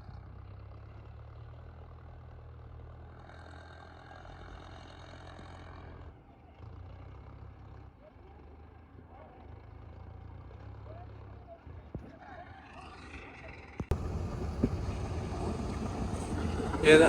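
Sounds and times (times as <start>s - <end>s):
diesel engine running: 12.6s - 17.0s.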